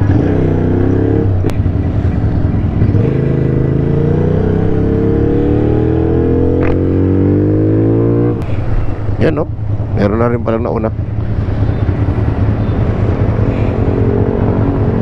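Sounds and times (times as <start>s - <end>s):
motorcycle engine accelerating: 0.0s - 8.4s.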